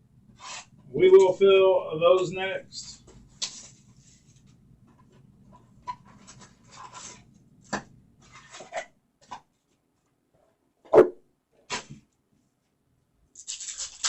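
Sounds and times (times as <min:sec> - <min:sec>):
cards rustling: 0:02.9 - 0:04.6, 0:13.4 - 0:14.0.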